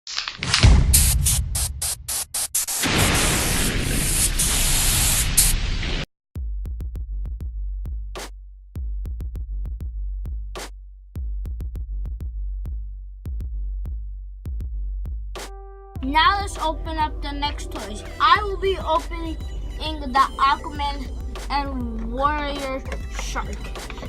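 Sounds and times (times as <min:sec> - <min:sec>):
electronic beat with heavy bass: 0:15.4 - 0:24.0.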